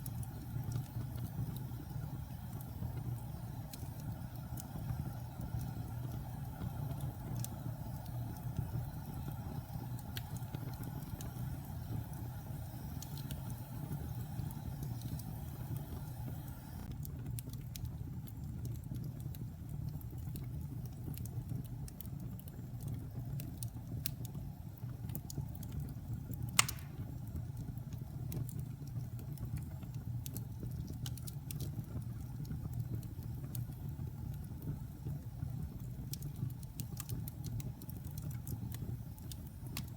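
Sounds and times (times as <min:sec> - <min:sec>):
fire flames rumbling: 0:00.0 - 0:39.9
wood fire crackles and pops: 0:00.0 - 0:39.9.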